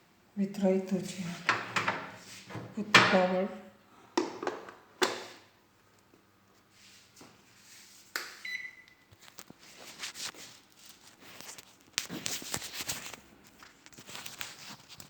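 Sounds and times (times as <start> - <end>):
microwave beep: 8.4 - 9.1.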